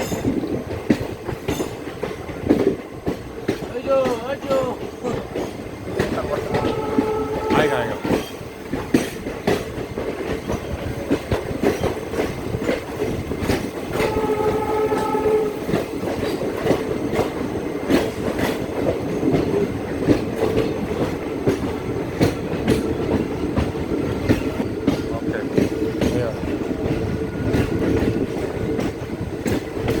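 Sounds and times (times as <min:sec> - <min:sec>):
train rumbling on track: 0:00.0 - 0:30.0
wheels clacking over rail joints: 0:00.0 - 0:30.0
horn-like steady tone: 0:06.4 - 0:08.2, 0:14.0 - 0:15.7.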